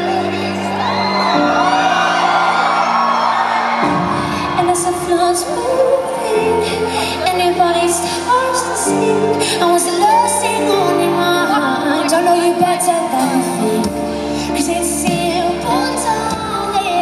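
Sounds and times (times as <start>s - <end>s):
woman singing pop ballad: 4.1s - 17.0s.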